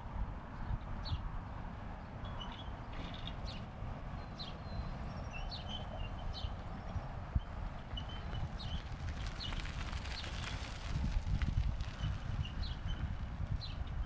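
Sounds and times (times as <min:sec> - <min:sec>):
small birds chirping: 0:02.2 - 0:10.7.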